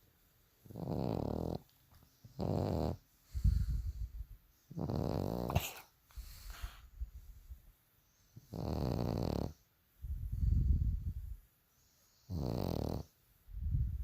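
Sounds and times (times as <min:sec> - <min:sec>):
dog snorting: 0:00.6 - 0:01.7, 0:02.3 - 0:03.0, 0:04.7 - 0:06.0, 0:08.5 - 0:09.6, 0:12.3 - 0:13.1
dog snoring: 0:00.6 - 0:03.0, 0:04.7 - 0:05.9, 0:08.4 - 0:09.6, 0:12.1 - 0:13.1.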